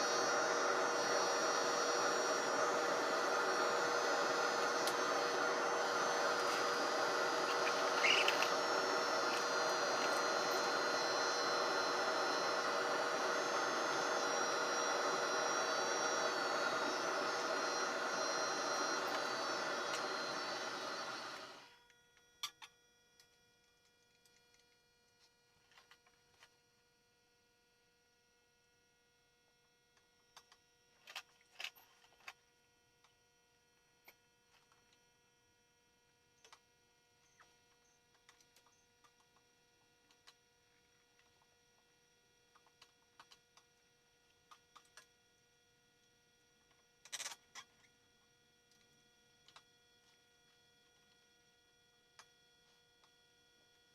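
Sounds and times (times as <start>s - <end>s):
steady hum with tones: 0.0s - 23.5s
faint hum: 0.0s - 26.5s.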